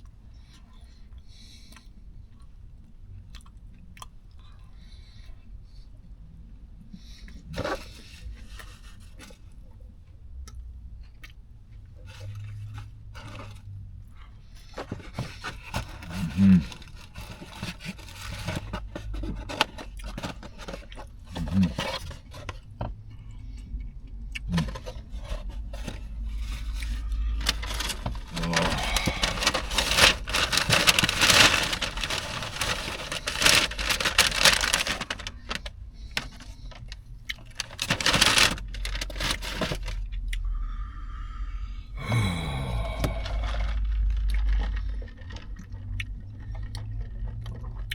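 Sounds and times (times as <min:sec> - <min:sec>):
chewing and mouth clicks: 0:01.7 - 0:04.7, 0:10.4 - 0:12.6, 0:23.0 - 0:25.1, 0:43.8 - 0:47.9
wrapper crinkling: 0:15.0 - 0:22.2, 0:24.5 - 0:40.0, 0:42.8 - 0:45.5.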